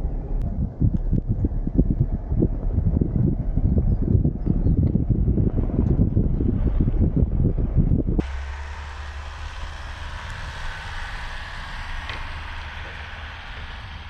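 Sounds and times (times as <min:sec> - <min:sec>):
vehicle engine droning: 0:00.0 - 0:14.0
wind buffeting microphone: 0:00.0 - 0:14.0
faint hiss: 0:08.2 - 0:14.0.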